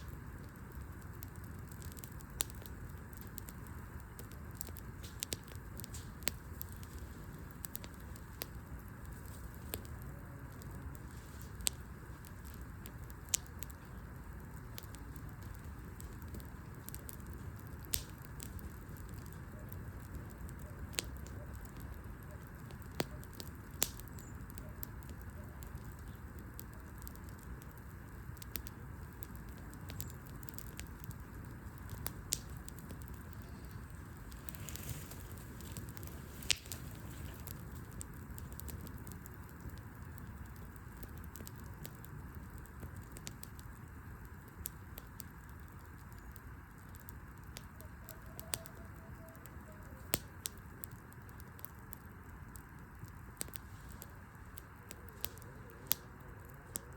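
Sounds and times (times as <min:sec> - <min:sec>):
low rumble of fire: 0:00.0 - 0:56.9
wood fire crackling and popping: 0:00.0 - 0:56.9.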